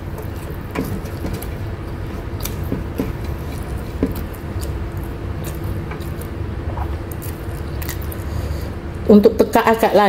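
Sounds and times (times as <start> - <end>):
steady low hum: 0.0 - 10.0
chewing with wet mouth clicks: 2.4 - 8.3.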